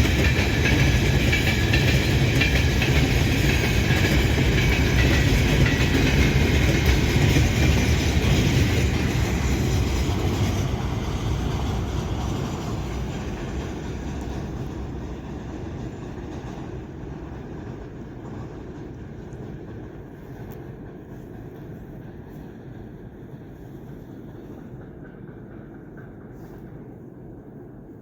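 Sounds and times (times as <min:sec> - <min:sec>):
freight train rolling past: 0:00.0 - 0:28.0.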